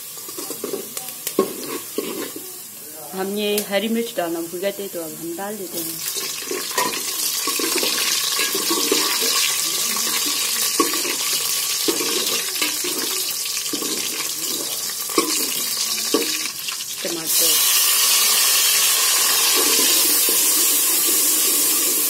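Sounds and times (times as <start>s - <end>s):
onions sizzling in hot oil: 0.0s - 22.0s
ladle scraping metal pot: 0.2s - 2.5s, 6.0s - 16.5s, 19.3s - 21.6s.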